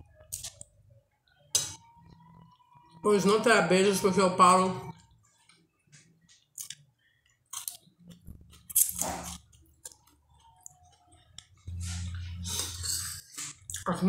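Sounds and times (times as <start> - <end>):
low steady hum: 0.0 - 14.0
woman chewing: 6.4 - 13.9.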